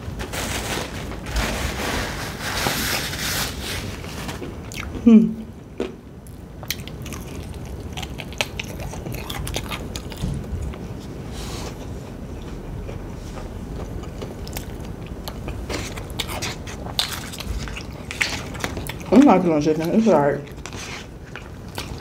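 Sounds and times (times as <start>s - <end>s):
chewing crispy fried chicken: 5.8s - 11.0s, 12.5s - 22.0s.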